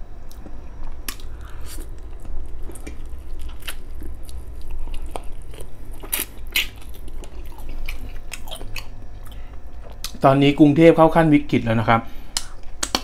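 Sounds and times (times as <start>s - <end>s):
low steady hum: 0.0s - 13.0s
person chewing ribs: 0.2s - 10.2s
wet mouth clicks and smacks: 12.4s - 13.0s.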